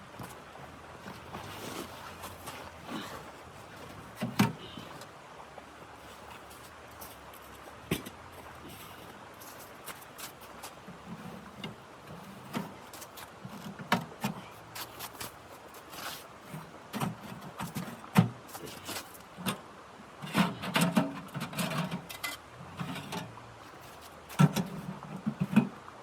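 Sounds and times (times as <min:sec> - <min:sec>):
objects clattering while handled: 0:20.2 - 0:25.8.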